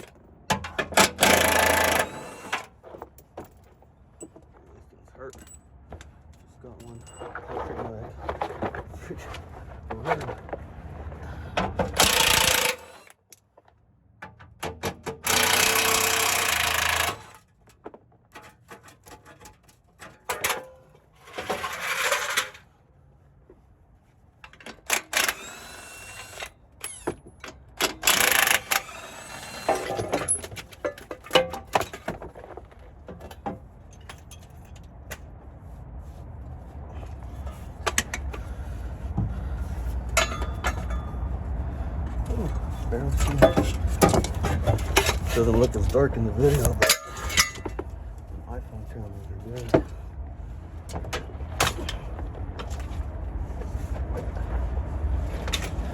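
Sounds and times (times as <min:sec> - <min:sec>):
tools and metal parts clanking: 0:00.0 - 0:10.5, 0:11.5 - 0:13.5, 0:14.2 - 0:22.7, 0:24.4 - 0:35.3, 0:40.1 - 0:41.2, 0:42.5 - 0:48.0, 0:55.3 - 0:55.9
power tool bursts: 0:01.0 - 0:02.6, 0:12.0 - 0:13.1, 0:15.2 - 0:17.4, 0:24.9 - 0:26.5, 0:28.0 - 0:30.2.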